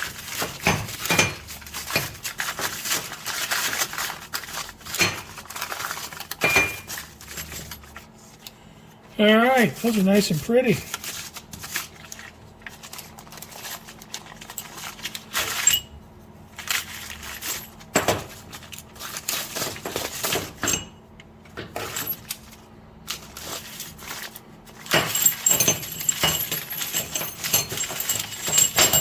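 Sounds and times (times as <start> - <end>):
small metal hardware clinking: 24.9 - 29.0.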